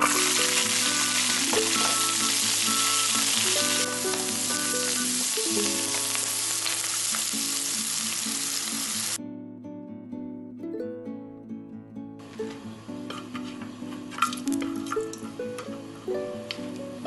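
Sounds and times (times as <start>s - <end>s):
vegetables sizzling in a frying pan: 0.0s - 9.2s
acoustic guitar music: 0.0s - 17.0s.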